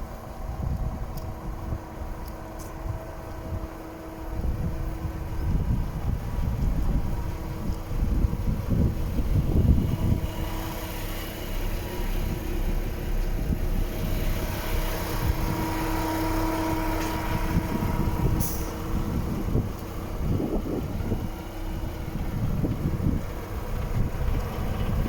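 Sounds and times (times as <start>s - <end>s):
diesel truck engine idling: 0.0s - 25.0s
wind buffeting microphone: 0.0s - 25.0s.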